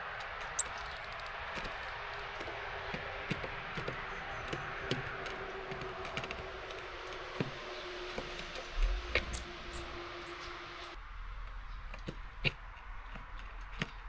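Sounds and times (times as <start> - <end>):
steady rain hiss: 0.0 - 11.6
taps and clicks on bird feeder: 0.2 - 9.9.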